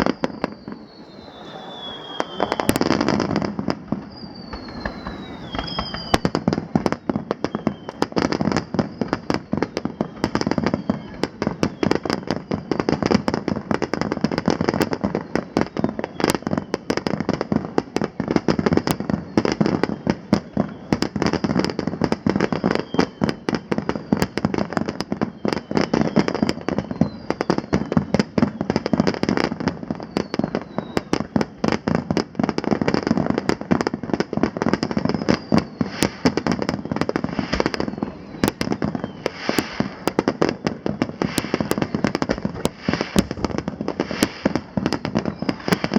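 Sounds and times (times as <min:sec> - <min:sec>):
fireworks bursting and crackling: 0:00.0 - 0:45.9.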